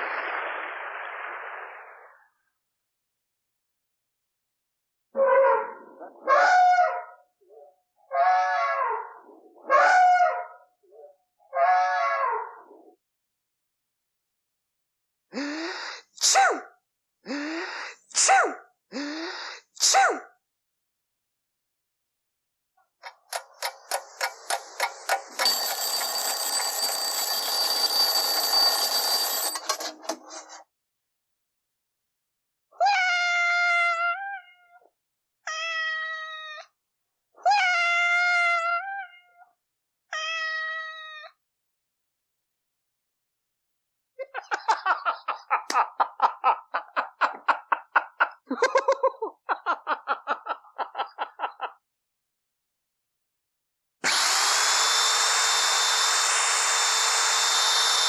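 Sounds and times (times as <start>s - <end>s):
alarm clock ticking: 23.1s - 30.0s
alarm clock bell ringing: 24.0s - 30.0s
person laughing: 44.2s - 51.9s.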